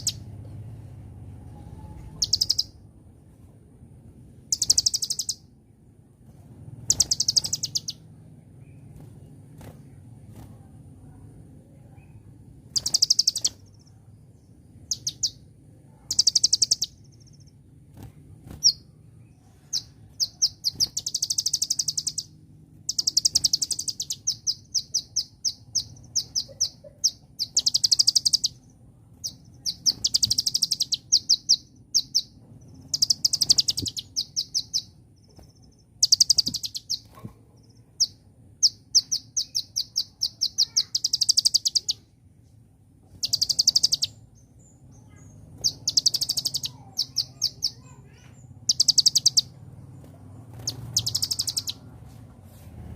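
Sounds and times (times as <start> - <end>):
bird high-pitched trills: 1.5 - 2.8, 4.5 - 5.5, 6.9 - 8.1, 12.7 - 13.9, 14.8 - 15.4, 16.1 - 17.6, 18.5 - 37.3, 38.0 - 42.1, 43.2 - 49.6, 50.5 - 51.9
bird sharp chips: 6.9 - 8.0, 12.7 - 13.8, 19.8 - 22.3, 29.2 - 42.0, 43.1 - 44.2, 45.0 - 49.5, 50.4 - 51.9.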